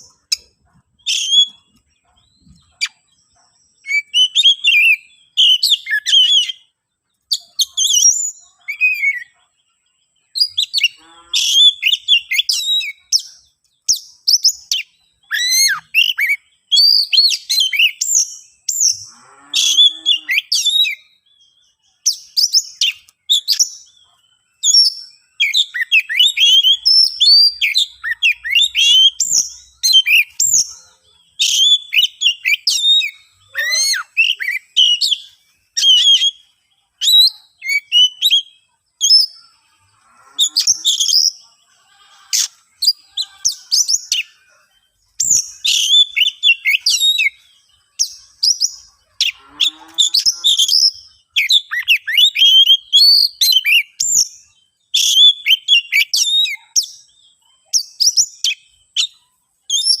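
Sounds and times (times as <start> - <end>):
bird singing chirps and trills: 0.0 - 60.0.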